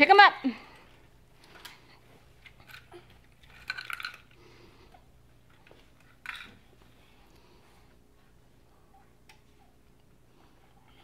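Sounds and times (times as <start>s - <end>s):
plastic rattling: 2.6s - 4.3s.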